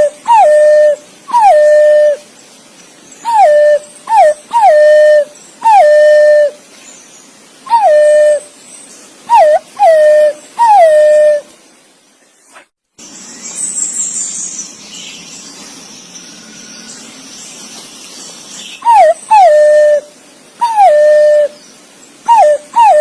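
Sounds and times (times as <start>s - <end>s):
pigeon whistled call: 0.0s - 2.2s, 3.2s - 6.6s, 7.7s - 8.5s, 9.3s - 11.5s, 18.8s - 21.6s, 22.3s - 23.0s.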